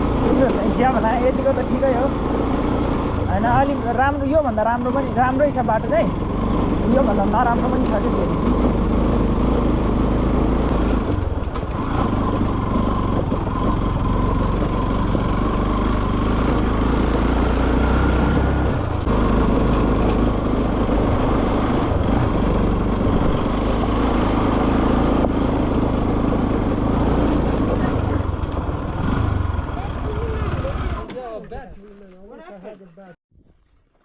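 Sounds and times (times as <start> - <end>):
motorcycle engine rumble: 0.0 - 32.0
road noise: 0.0 - 34.0.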